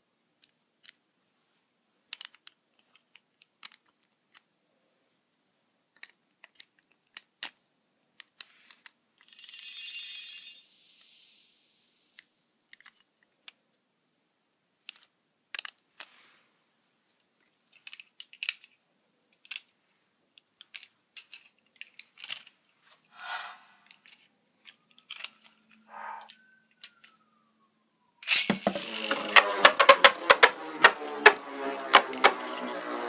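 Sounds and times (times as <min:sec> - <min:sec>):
plastic parts clicking: 0:02.1 - 0:04.5, 0:05.9 - 0:07.6, 0:14.8 - 0:16.1, 0:17.4 - 0:19.7, 0:20.4 - 0:22.6, 0:24.9 - 0:25.6, 0:28.3 - 0:32.7.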